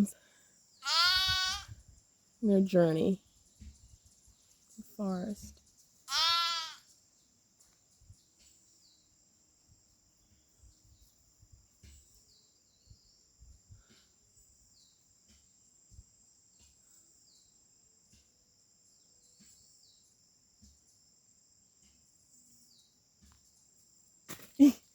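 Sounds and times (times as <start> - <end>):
high-pitched insect chorus: 0.0 - 11.7.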